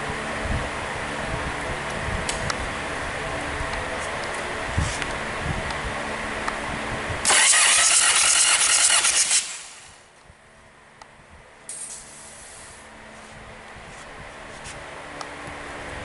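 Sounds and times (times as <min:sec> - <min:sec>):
diesel engine cranking: 0:07.2 - 0:10.0
brief hiss: 0:11.7 - 0:12.8.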